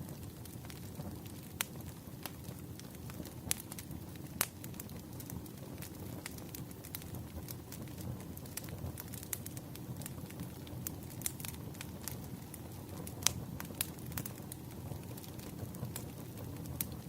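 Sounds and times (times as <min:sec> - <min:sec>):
firewood crackling and popping: 0:00.0 - 0:17.0.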